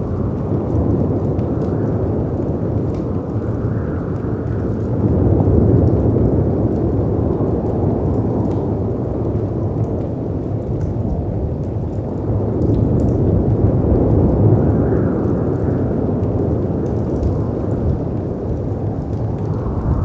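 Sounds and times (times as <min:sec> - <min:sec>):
wood fire crackling: 0:00.0 - 0:20.0
wind rushing: 0:14.2 - 0:20.0.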